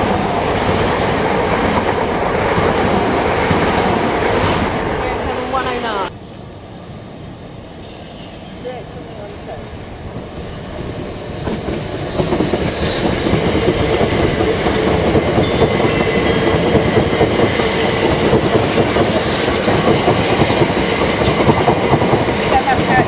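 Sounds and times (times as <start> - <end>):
train wheels clattering over rails: 10.9 - 23.0.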